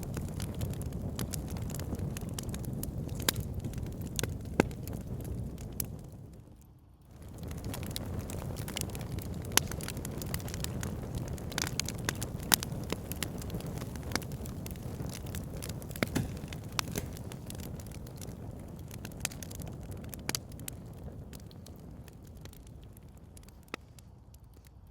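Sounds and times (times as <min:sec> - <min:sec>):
fire crackling and popping: 0:00.0 - 0:24.9
flame rushing: 0:07.2 - 0:22.1.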